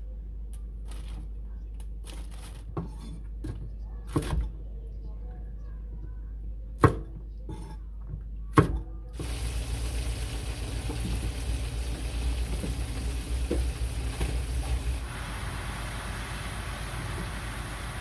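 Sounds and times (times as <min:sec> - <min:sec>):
tap water running into sink: 0:09.2 - 0:18.0.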